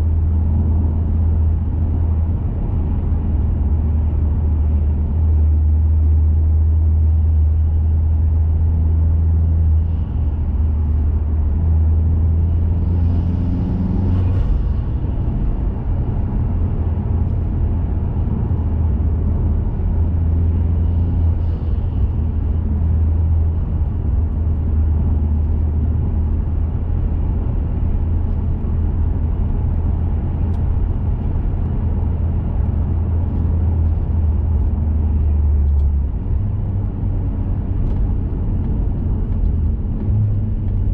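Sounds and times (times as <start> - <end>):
car exhaust drone: 0.0 - 40.9
tyre and road noise: 0.0 - 40.9.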